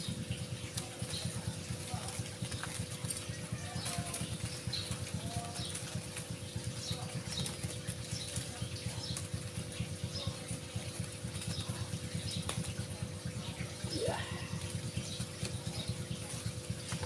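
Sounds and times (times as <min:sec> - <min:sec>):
faint bird chirps: 0:13.4 - 0:16.0.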